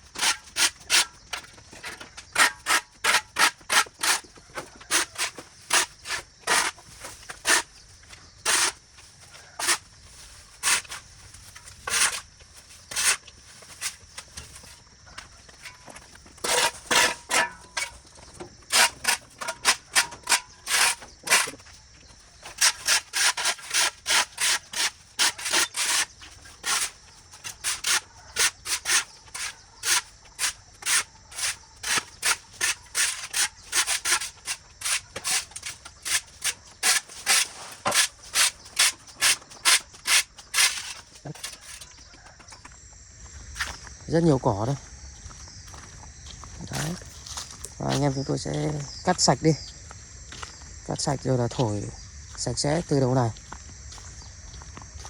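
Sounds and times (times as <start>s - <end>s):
hand tool scraping ground litter: 0.0s - 42.6s.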